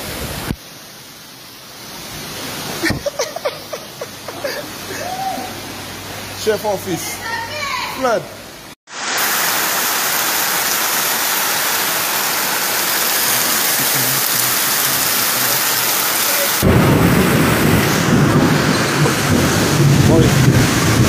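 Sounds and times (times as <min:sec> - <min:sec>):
heavy rain pouring: 0:00.0 - 0:21.0
deep low rumbling: 0:16.6 - 0:21.0.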